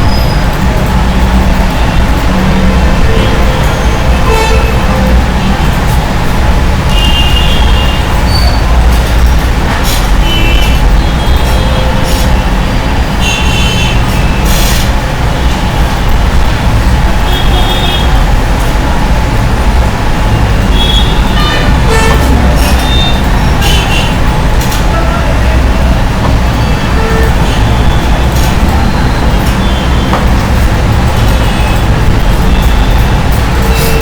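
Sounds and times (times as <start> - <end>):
road traffic rumble: 0.0 - 34.0
high-pitched horn toots: 1.8 - 5.5, 20.6 - 24.2, 24.8 - 30.2, 31.2 - 34.0.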